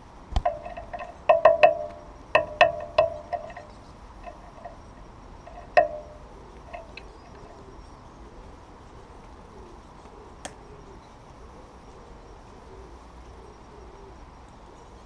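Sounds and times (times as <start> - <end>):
bird pecking hollow feeder: 0.4 - 7.7.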